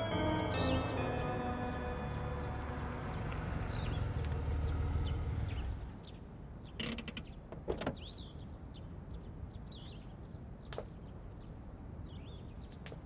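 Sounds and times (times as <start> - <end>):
bird chirps: 2.2 - 6.8.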